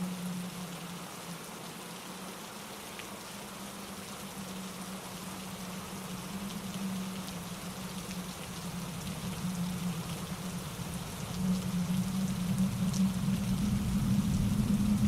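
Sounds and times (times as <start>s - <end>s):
raindrops ticking: 6.1s - 15.0s.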